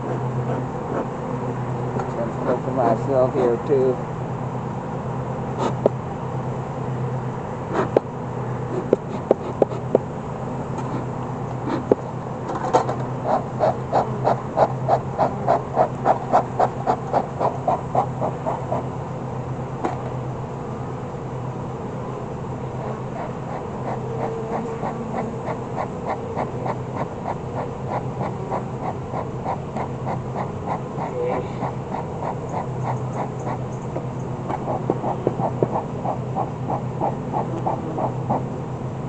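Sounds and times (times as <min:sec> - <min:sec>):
honeybees buzzing: 0:00.0 - 0:39.0.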